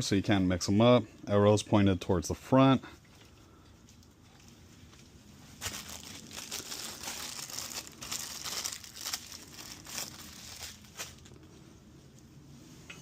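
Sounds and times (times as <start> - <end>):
crinkly material rustling: 3.8 - 11.6.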